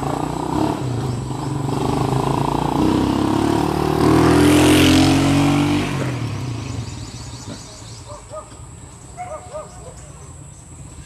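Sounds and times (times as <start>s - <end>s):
vehicle engine passing by: 0.0s - 8.1s
faint bird chirping: 6.3s - 11.0s.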